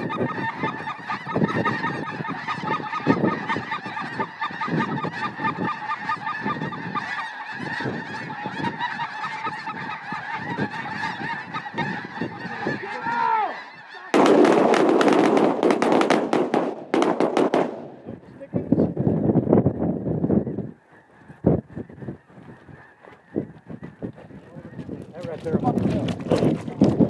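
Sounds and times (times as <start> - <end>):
geese honking: 0.0 - 19.0, 19.6 - 27.0.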